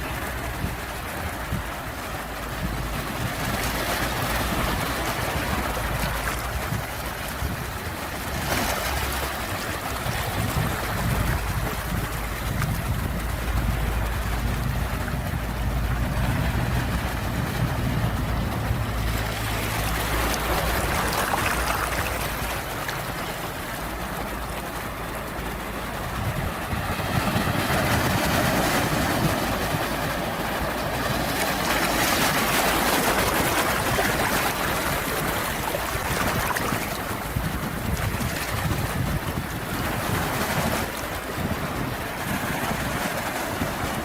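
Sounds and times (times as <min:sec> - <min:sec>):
sea waves washing: 0:00.0 - 0:44.0
low rumble: 0:10.4 - 0:22.7.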